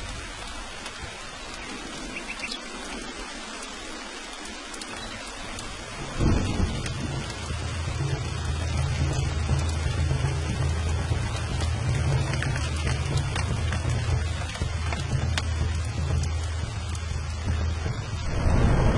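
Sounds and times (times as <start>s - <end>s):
steady rain: 0.0s - 18.9s
thunderclap rumbling: 5.6s - 18.9s.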